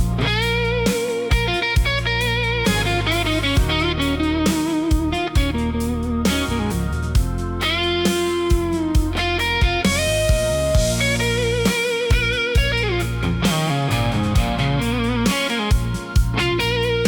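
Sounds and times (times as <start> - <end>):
bass accompaniment: 0.0 - 17.0
electric blues guitar: 0.0 - 17.0.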